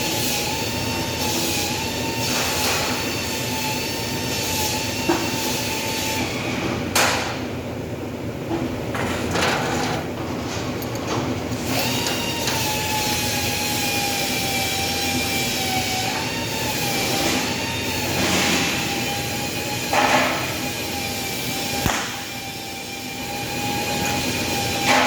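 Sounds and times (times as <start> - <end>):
continuous machinery noise: 0.0 - 25.0
machine whine: 10.9 - 25.0.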